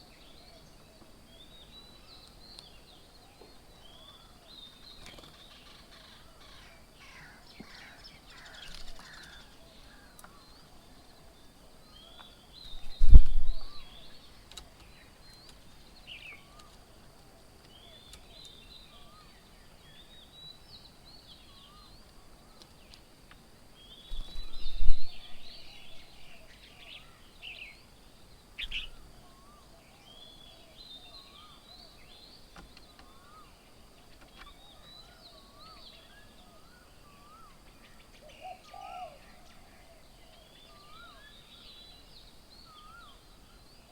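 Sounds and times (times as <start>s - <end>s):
birds chirping: 0.0s - 43.9s
wind buffeting microphone: 12.7s - 13.9s, 24.2s - 25.8s.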